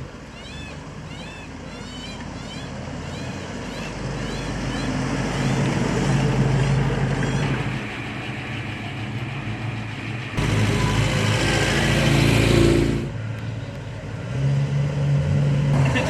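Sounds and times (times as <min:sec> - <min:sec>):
car engines running: 0:00.0 - 0:16.0
car engine revving: 0:03.9 - 0:13.2.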